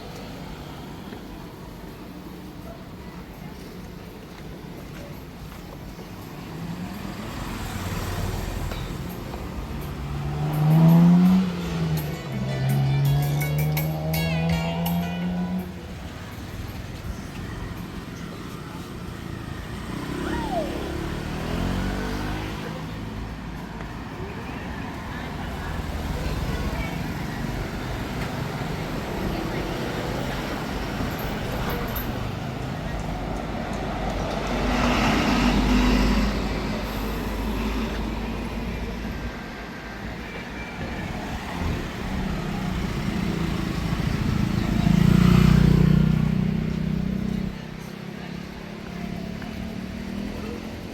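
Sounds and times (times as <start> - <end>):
low rumble of traffic: 0.0 - 50.9
vehicles passing close by: 0.0 - 50.9
vehicle engine passing: 6.6 - 15.9, 19.3 - 23.3, 41.2 - 50.9.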